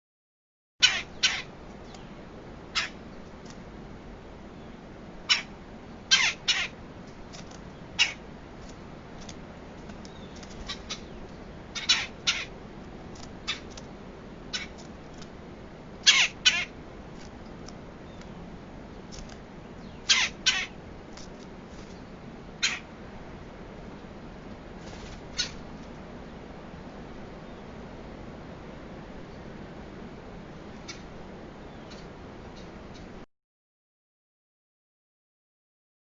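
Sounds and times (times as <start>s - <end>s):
woodpecker calling: 0.8s - 3.0s, 5.3s - 5.5s, 6.1s - 6.8s, 8.0s - 8.8s, 10.0s - 12.6s, 13.4s - 13.8s, 14.4s - 14.9s, 16.0s - 16.8s, 19.7s - 20.8s, 22.6s - 22.9s.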